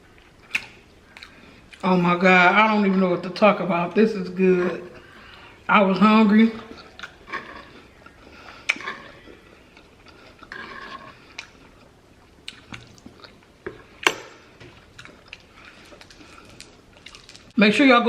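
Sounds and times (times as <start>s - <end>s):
person chewing food: 0.1s - 1.8s, 6.6s - 17.6s.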